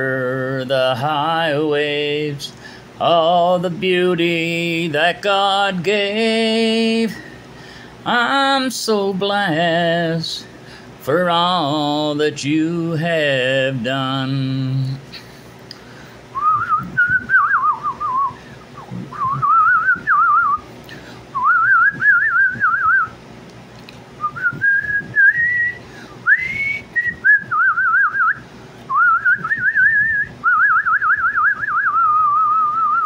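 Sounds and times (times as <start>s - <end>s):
man whistling a trilling tune: 16.4s - 20.7s, 21.3s - 23.2s, 24.2s - 33.0s.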